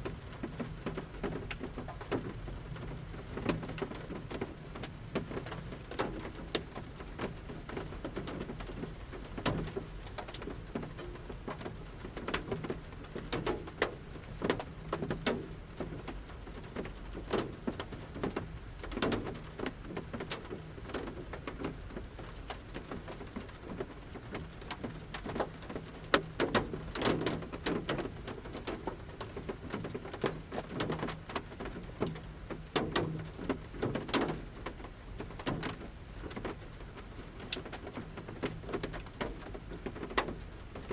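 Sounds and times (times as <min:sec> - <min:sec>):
raindrops tapping on van roof: 0:00.0 - 0:40.9.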